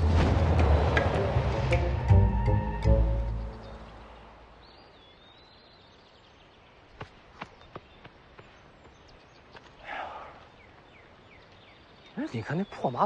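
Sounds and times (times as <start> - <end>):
music: 0.0 - 4.0
quiet outdoor ambience: 0.0 - 13.0
bird chirp: 2.7 - 13.0.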